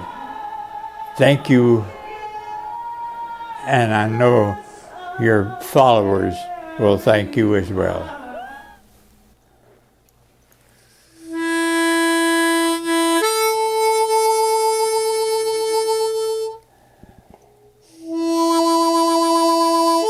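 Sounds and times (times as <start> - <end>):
harmonica playing slow tune: 11.0 - 17.0, 17.6 - 20.0.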